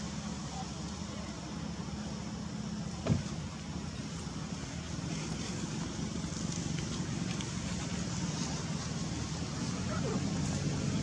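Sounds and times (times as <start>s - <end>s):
engine humming: 0.0s - 11.0s
brief thump: 3.0s - 3.3s.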